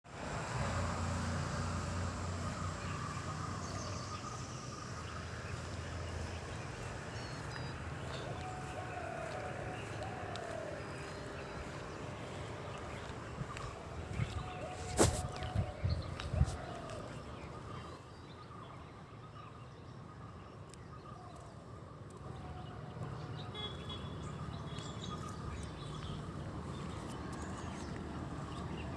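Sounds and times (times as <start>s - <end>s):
birds chirping: 0.4s - 28.9s
lower bird calls: 2.3s - 19.4s.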